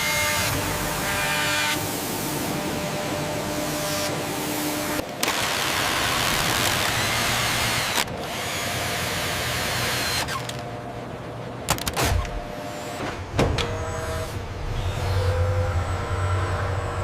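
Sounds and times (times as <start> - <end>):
power tool whirring: 5.2 - 10.6
low hum: 13.3 - 17.0.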